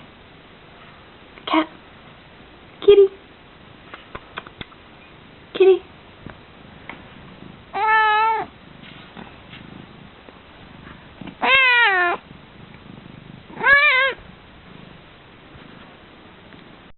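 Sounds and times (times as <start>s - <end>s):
cat meowing: 7.7s - 8.5s, 11.3s - 12.2s, 13.5s - 14.2s.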